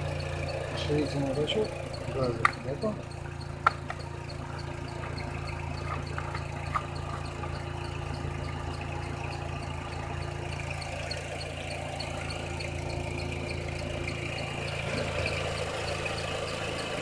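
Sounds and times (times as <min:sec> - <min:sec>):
car engine idling: 0:00.0 - 0:17.0
faint regular ticking: 0:00.0 - 0:17.0
small clicks: 0:01.6 - 0:09.4.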